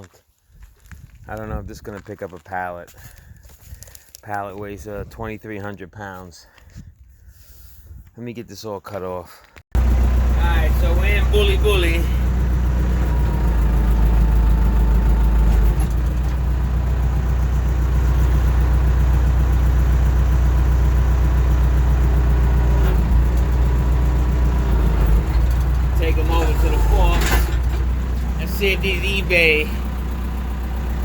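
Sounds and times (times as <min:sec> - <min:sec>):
backhoe engine running: 0:09.8 - 0:31.0.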